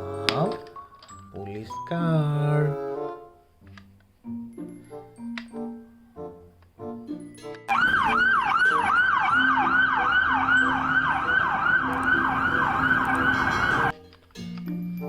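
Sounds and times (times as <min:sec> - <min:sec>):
toy police car siren: 0:07.7 - 0:13.9.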